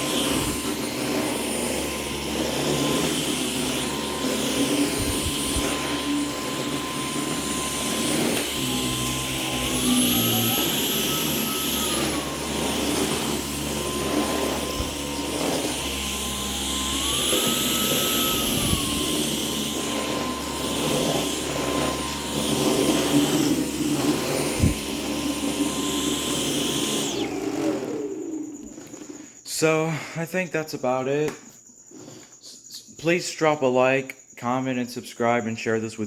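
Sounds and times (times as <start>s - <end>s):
vacuum cleaner whining: 0.0s - 33.4s.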